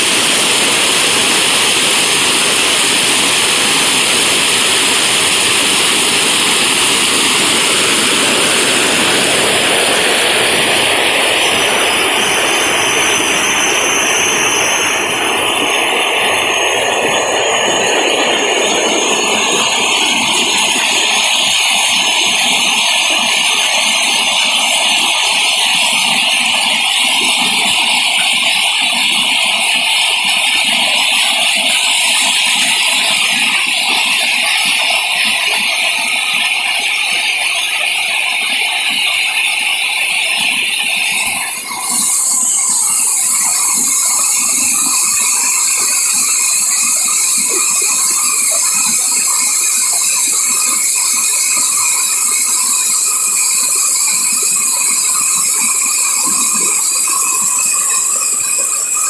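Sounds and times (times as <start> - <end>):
insects chirring: 40.5 - 59.0.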